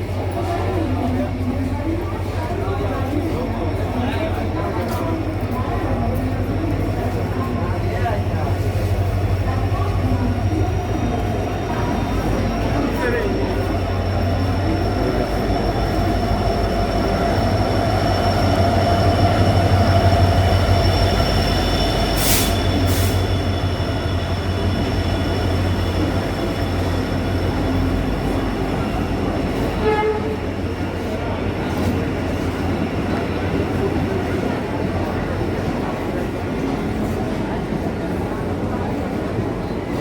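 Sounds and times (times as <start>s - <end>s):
train rumbling on track: 0.0s - 40.0s.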